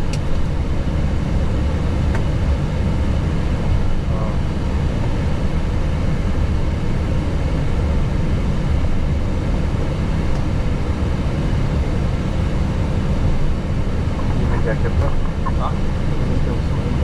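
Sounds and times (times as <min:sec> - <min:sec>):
airliner engines idling: 0:00.0 - 0:17.0.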